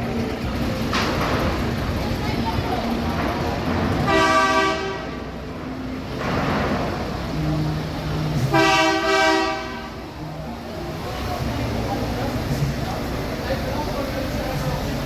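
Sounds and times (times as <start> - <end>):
low engine rumble: 0.0 - 15.0
truck air horn blasts: 4.0 - 5.4, 8.4 - 10.1.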